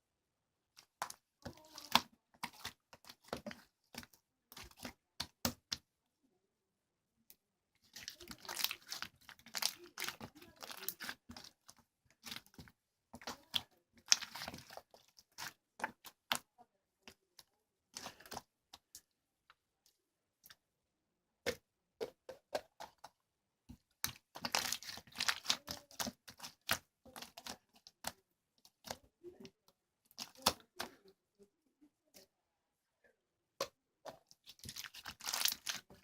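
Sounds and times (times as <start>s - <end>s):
slime crackling and popping: 24.0s - 28.1s, 34.4s - 36.0s.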